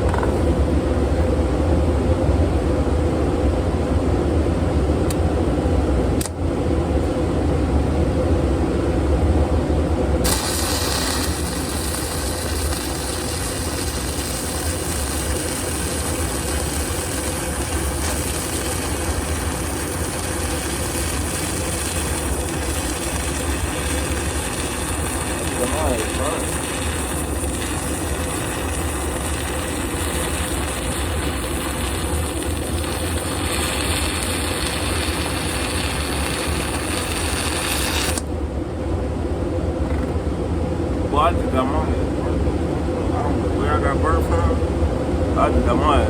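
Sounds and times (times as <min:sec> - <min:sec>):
welding arc hissing: 0:10.2 - 0:38.3.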